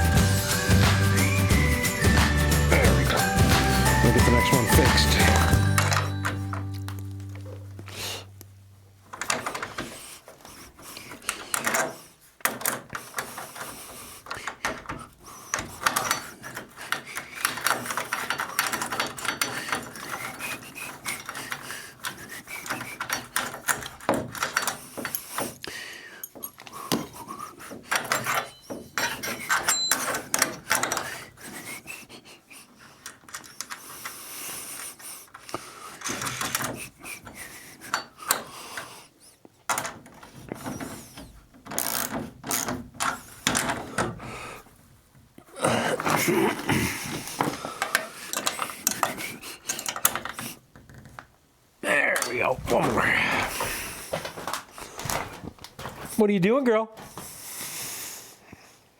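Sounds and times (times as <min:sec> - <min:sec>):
materials rustling and scraping: 0:52.0 - 0:56.3.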